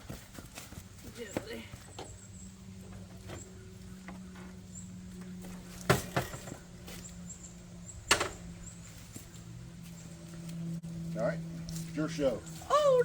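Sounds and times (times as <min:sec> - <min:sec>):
steady low hum: 0:00.0 - 0:13.0
motorcycle clunking onto its side: 0:05.2 - 0:06.6, 0:08.1 - 0:08.5.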